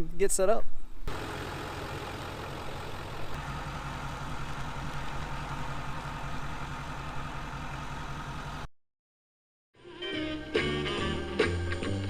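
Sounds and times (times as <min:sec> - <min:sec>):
pickup truck engine running: 0:01.1 - 0:08.7.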